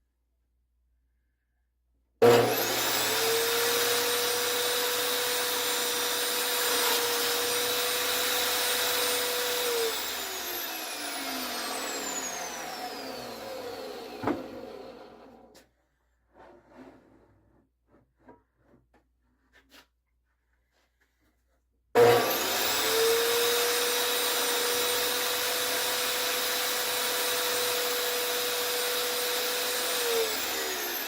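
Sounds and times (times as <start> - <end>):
table saw running: 2.2 - 15.5, 22.0 - 31.0
knock: 14.2 - 14.6.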